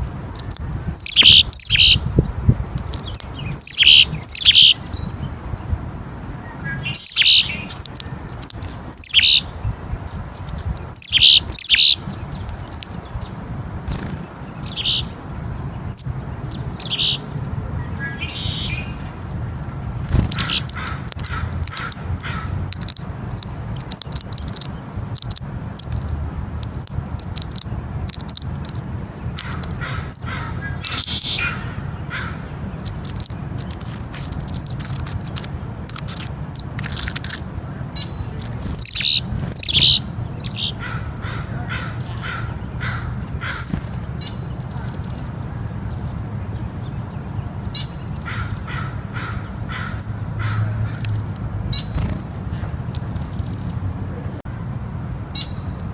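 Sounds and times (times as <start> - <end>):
tits chirping: 0.0 - 54.4
beaks tapping peanut shells: 0.3 - 1.8, 7.1 - 9.2, 20.1 - 28.8, 29.4 - 29.9, 32.8 - 37.4.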